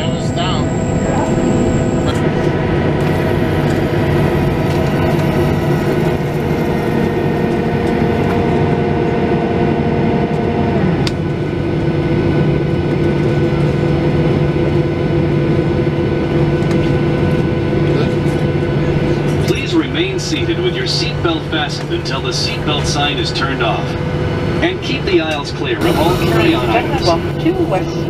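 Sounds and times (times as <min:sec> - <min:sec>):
whine dropping in pitch: 0:00.0 - 0:12.7, 0:25.7 - 0:28.0
jet engines and cabin noise: 0:00.0 - 0:28.0.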